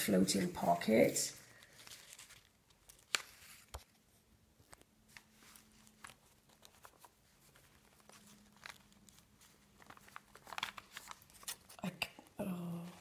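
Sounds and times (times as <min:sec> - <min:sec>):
paper rustling: 0:00.3 - 0:13.0.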